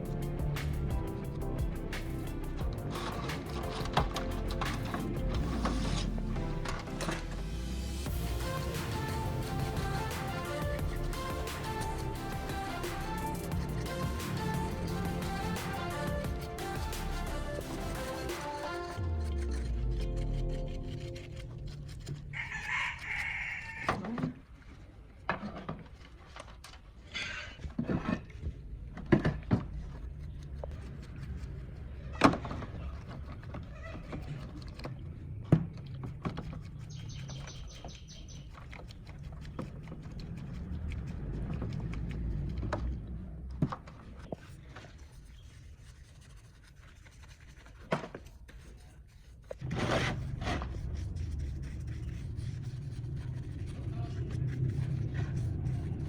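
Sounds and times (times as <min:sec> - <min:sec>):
low steady rumble: 0:00.0 - 0:18.1, 0:49.6 - 0:56.0
scraping noise: 0:00.0 - 0:23.4, 0:47.2 - 0:56.0.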